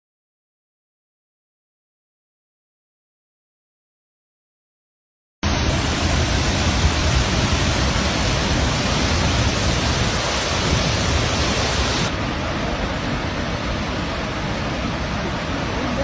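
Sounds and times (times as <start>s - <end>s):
waterfall rushing: 5.4s - 16.0s.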